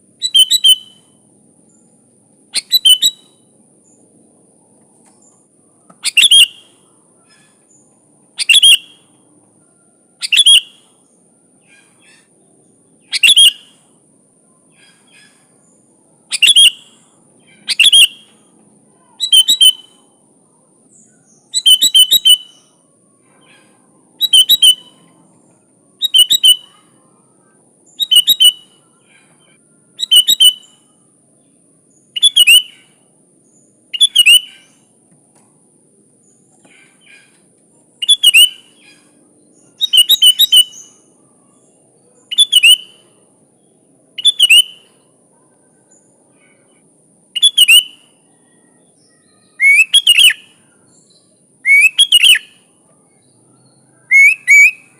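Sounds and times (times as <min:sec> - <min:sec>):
bulbul calling: 0:00.2 - 0:01.2, 0:02.5 - 0:03.4, 0:05.9 - 0:07.8, 0:08.4 - 0:09.1, 0:10.2 - 0:10.9, 0:13.0 - 0:13.8, 0:16.3 - 0:18.4, 0:19.2 - 0:20.0, 0:21.4 - 0:22.7, 0:23.3 - 0:25.0, 0:26.0 - 0:26.9, 0:28.0 - 0:30.8, 0:32.2 - 0:33.0, 0:33.9 - 0:34.9, 0:36.6 - 0:41.1, 0:42.3 - 0:43.1, 0:44.2 - 0:45.0, 0:47.4 - 0:48.1, 0:49.6 - 0:50.6, 0:51.7 - 0:52.7, 0:54.1 - 0:54.9.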